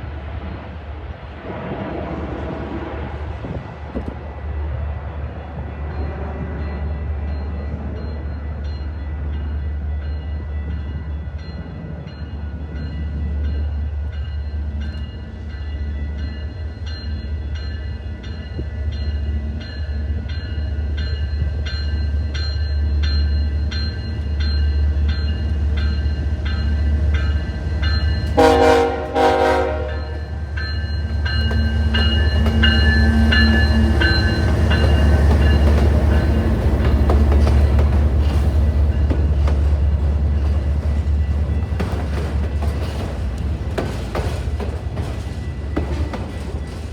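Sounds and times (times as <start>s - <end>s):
train rumbling past: 0.0s - 46.9s
locomotive horn blasts: 28.3s - 30.4s.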